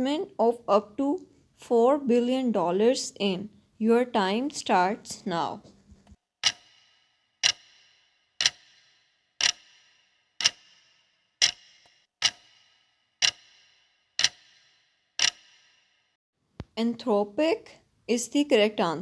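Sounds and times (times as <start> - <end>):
clock ticking: 6.4 - 15.6.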